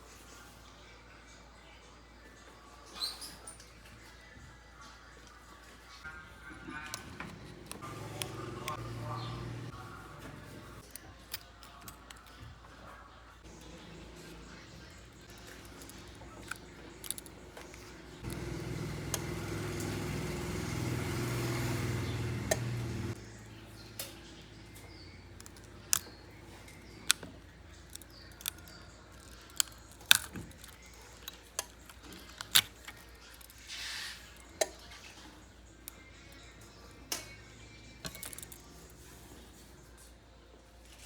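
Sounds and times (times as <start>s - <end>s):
small motorised tool running: 6.9s - 9.8s, 15.4s - 23.2s
small metal tools clicking: 10.8s - 12.5s, 14.4s - 19.2s, 23.9s - 39.1s.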